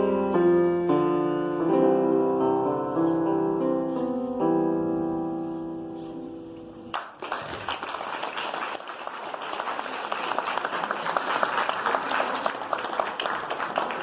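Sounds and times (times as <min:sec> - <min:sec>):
piano piece: 0:00.0 - 0:07.8
audience applauding: 0:06.9 - 0:14.0.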